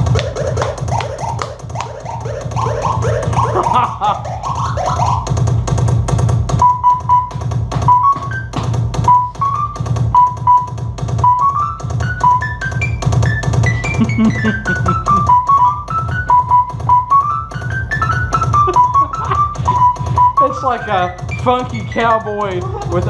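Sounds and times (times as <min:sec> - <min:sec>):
steady bass: 0:00.0 - 0:11.0, 0:13.7 - 0:15.7
programmed drum beat: 0:00.0 - 0:23.0
short keyboard notes: 0:06.6 - 0:23.0.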